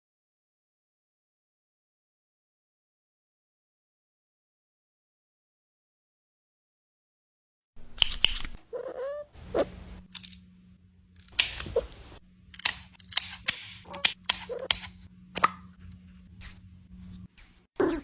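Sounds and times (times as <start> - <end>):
faint steady hum: 7.8 - 18.0
sharp irregular clicks and taps: 12.5 - 15.6.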